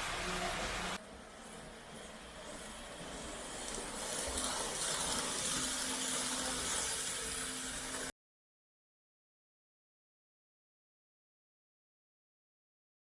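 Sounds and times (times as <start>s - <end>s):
model train wheels hissing: 0.0s - 8.1s.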